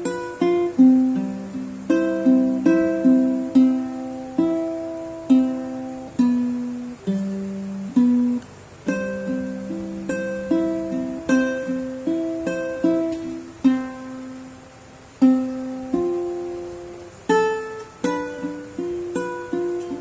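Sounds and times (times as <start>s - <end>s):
plucked string instrument melody: 0.0s - 20.0s.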